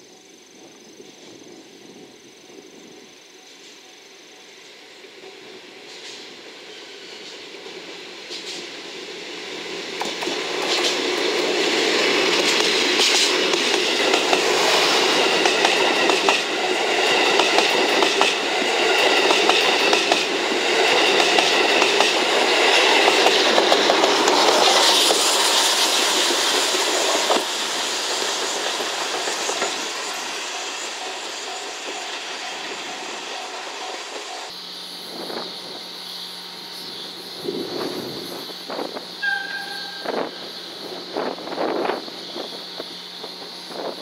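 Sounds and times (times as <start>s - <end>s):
train wheels clattering over joints: 9.9s - 34.5s.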